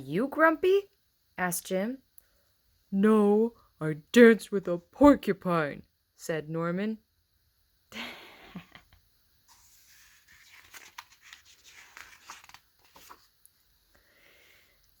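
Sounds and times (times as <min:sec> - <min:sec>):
book pages turning: 0:09.5 - 0:13.4.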